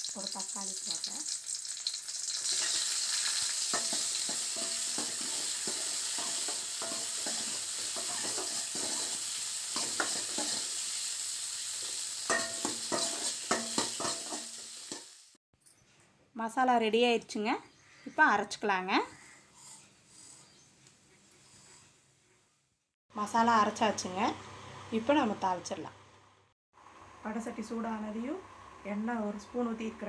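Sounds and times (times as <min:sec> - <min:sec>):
food sizzling in hot oil: 0:00.0 - 0:15.4
ladle scraping a metal pan: 0:03.7 - 0:10.7.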